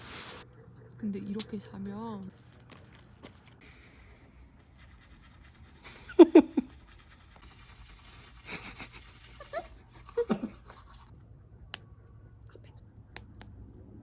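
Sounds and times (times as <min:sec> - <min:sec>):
person laughing: 0:05.8 - 0:06.8, 0:08.4 - 0:10.8.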